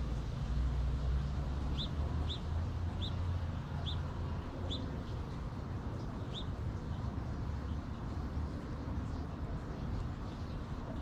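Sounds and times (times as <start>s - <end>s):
small bird chirping: 1.1s - 8.2s.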